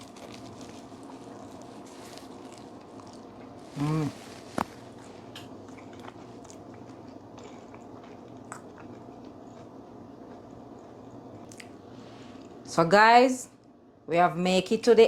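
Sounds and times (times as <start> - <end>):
person chewing food: 0.0 - 11.8
faint steady hum: 0.0 - 15.0.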